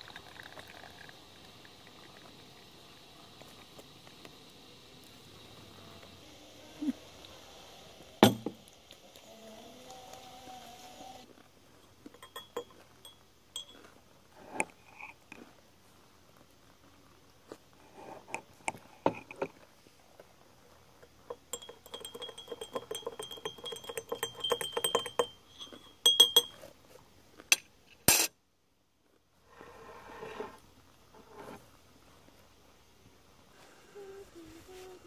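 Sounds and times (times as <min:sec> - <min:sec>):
glassware and utensils clinking: 0:08.2 - 0:08.6, 0:11.8 - 0:13.9, 0:21.2 - 0:26.6
steady ringing tone: 0:11.8 - 0:13.8, 0:21.3 - 0:26.6.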